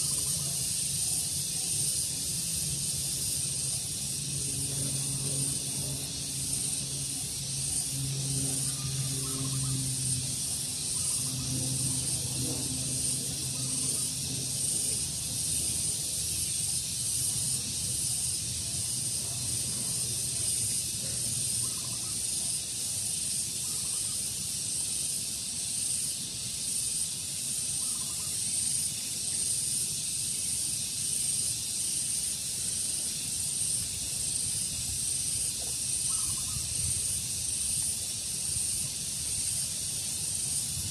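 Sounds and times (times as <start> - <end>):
high-pitched insect drone: 0.0 - 40.9
low engine hum: 3.8 - 21.5
faint bird calls: 27.8 - 28.3, 36.0 - 36.7.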